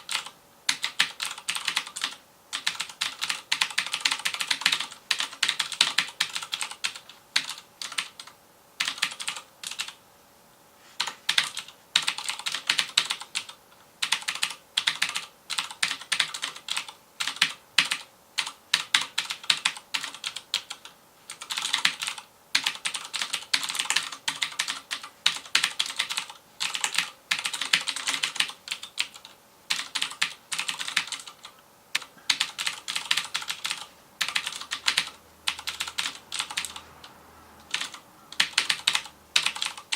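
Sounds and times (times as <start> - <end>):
clicky mechanical keyboard typing: 0.0 - 10.0, 11.0 - 39.9.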